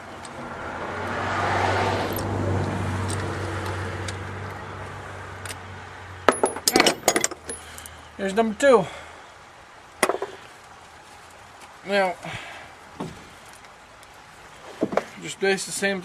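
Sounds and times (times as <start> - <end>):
passing vehicle: 0.0 - 6.4
metal parts clinking: 6.3 - 7.9.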